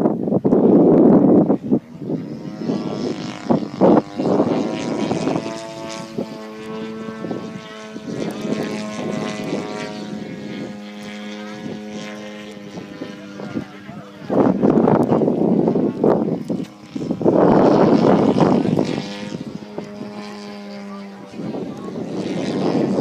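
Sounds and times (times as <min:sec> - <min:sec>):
model airplane droning: 0:00.0 - 0:23.0.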